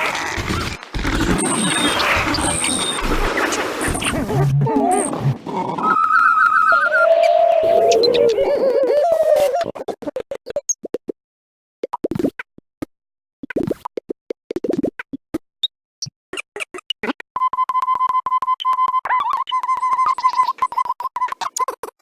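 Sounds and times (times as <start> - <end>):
chopped bird call snippets: 5.8 - 9.4
whistle-like tone: 18.7 - 21.4.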